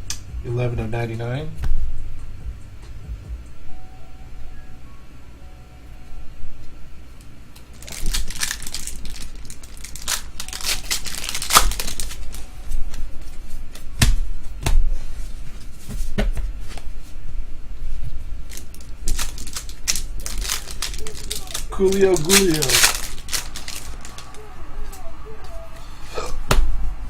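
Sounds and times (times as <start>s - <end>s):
wrapper crinkling: 7.6s - 13.0s, 18.4s - 25.0s
cards snapping and clicking: 7.7s - 12.4s, 18.5s - 24.4s.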